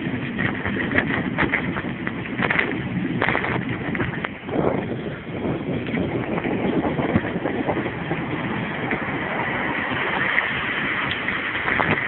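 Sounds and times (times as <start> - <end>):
bicycle rattling downhill: 0.0 - 12.0
wind rushing over microphone: 0.0 - 12.0.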